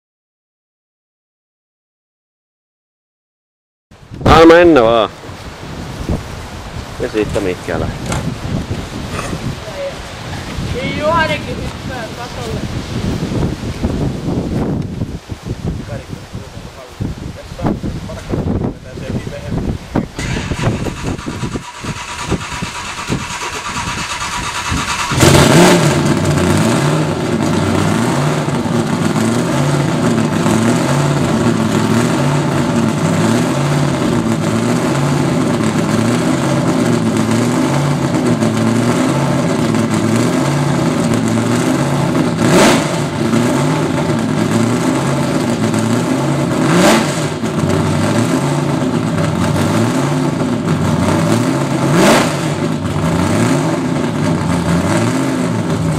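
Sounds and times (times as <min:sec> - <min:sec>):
car engine starting: 0:19.8 - 0:55.9
engine throttle blips: 0:20.0 - 0:55.9.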